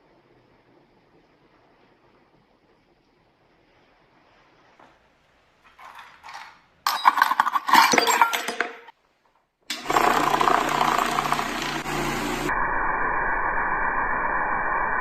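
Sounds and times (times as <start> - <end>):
metal parts clinking and rattling: 5.6 - 8.9
machine whirring with low hum: 9.7 - 15.0.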